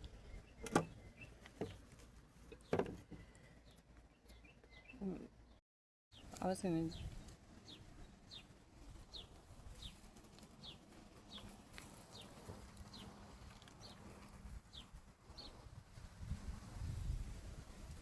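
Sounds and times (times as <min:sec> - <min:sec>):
small bird calling: 0:06.2 - 0:14.1.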